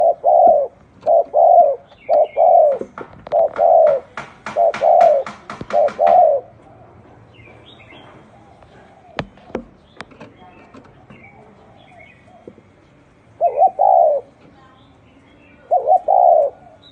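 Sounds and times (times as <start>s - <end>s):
dove cooing: 0.0s - 6.7s, 7.9s - 9.8s, 13.4s - 14.4s, 15.6s - 16.9s
small birds chirping: 0.0s - 16.9s.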